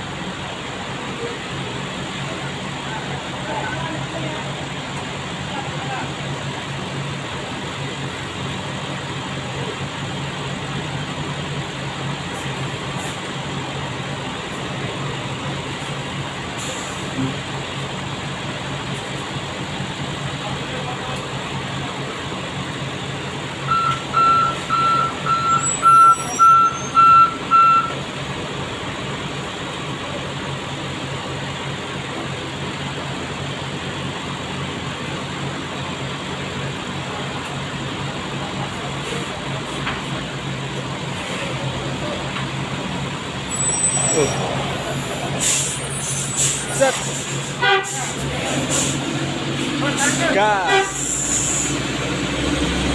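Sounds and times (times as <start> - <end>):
truck diesel engines running: 0.0 - 52.9
reversing alarm beeping: 23.7 - 28.0.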